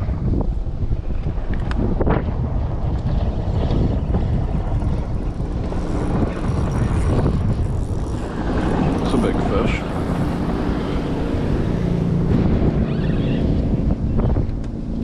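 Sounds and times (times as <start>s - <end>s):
motorboat engine droning: 0.0s - 15.0s
wind buffeting microphone: 0.0s - 15.0s.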